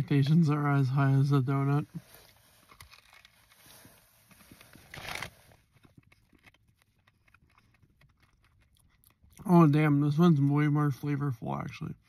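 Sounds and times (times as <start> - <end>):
person chewing cookie: 5.8 - 9.5.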